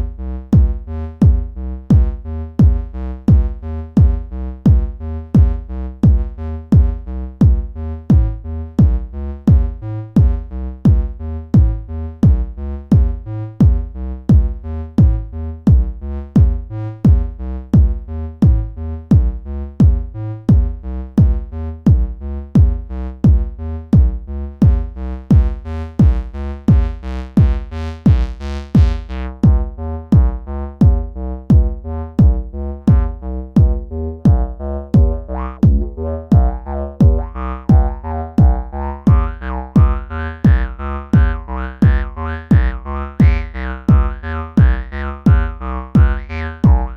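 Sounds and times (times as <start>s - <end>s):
electronic synth music: 30.9s - 46.9s.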